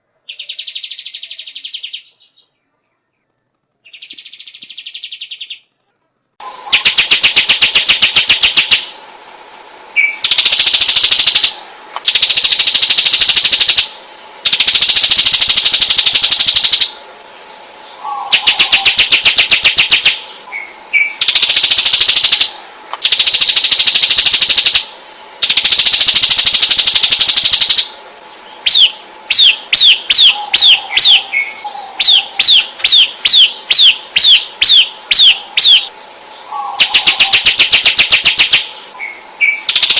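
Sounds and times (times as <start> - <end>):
songbird rattling song: 0.3 - 5.7, 6.4 - 39.9
bird downward-sweeping whistles: 10.0 - 11.5, 17.8 - 27.9, 28.6 - 39.9.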